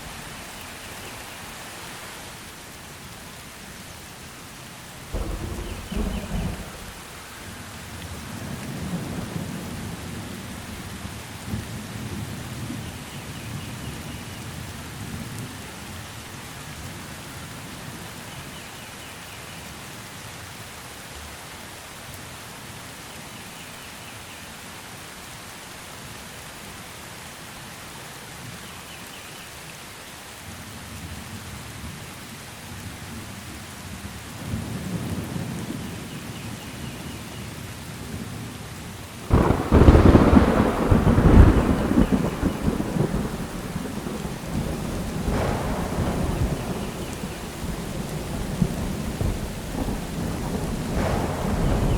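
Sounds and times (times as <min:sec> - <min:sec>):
steady rain: 0:00.0 - 0:51.9
loud thunderclap: 0:05.0 - 0:07.5, 0:39.3 - 0:51.9
thunder rumbling: 0:05.0 - 0:10.9, 0:39.2 - 0:51.9.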